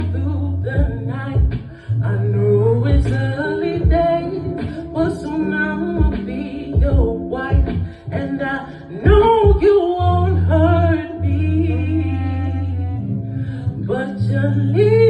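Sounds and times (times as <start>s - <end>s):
low bass notes: 0.0s - 15.0s
voices singing a melody: 0.0s - 15.0s
deep kick drum beat: 0.7s - 1.8s, 2.9s - 3.2s, 3.8s - 4.9s, 6.0s - 8.1s, 9.0s - 9.8s.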